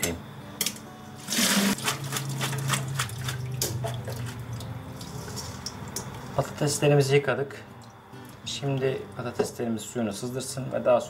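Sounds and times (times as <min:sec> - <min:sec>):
kitchen tap running: 0:01.2 - 0:06.2
bowl and strainer clinking: 0:01.6 - 0:06.3.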